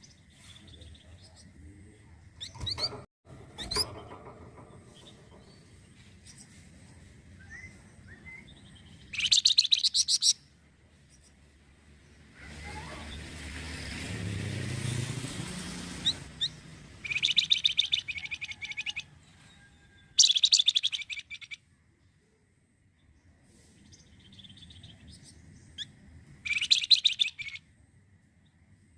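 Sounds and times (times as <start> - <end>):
songbird chattering trill: 7.5 - 10.4, 16.4 - 19.0, 20.2 - 21.6, 24.0 - 27.6
passing vehicle rumble: 10.5 - 20.1.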